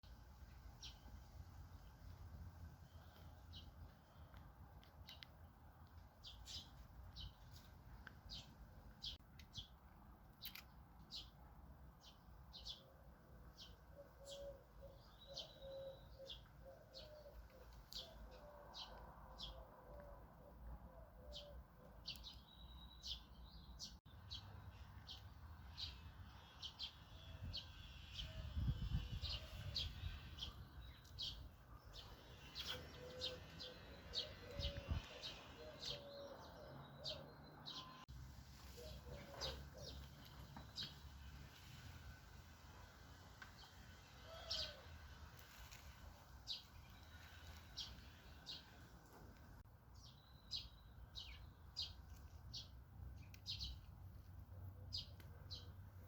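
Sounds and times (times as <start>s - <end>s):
birds chirping: 0.8s - 38.1s, 38.7s - 41.8s, 43.5s - 53.9s
lower cooing calls: 13.9s - 22.0s, 32.4s - 38.1s, 38.7s - 40.4s, 44.2s - 45.0s.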